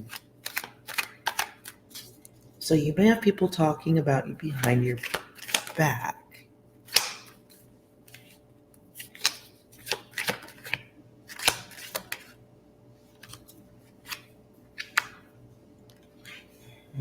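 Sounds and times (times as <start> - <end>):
cards being shuffled: 0.0 - 2.5, 4.5 - 5.8, 6.9 - 12.4, 13.1 - 15.3.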